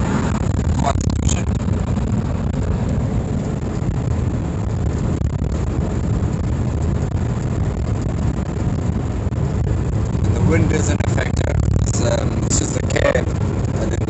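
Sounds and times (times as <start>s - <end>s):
road noise: 0.0s - 14.0s
truck engine: 0.0s - 14.0s
wind noise: 0.0s - 14.0s.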